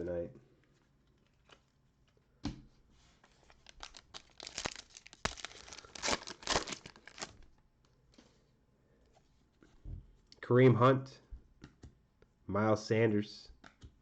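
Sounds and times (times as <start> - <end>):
wrapper tearing and crinkling: 3.4 - 7.5.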